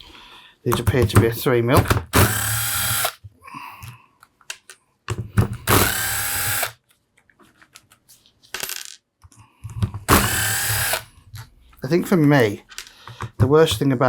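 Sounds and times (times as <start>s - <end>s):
power driver spinning screws: 2.2s - 3.2s, 5.6s - 6.8s, 10.1s - 11.1s.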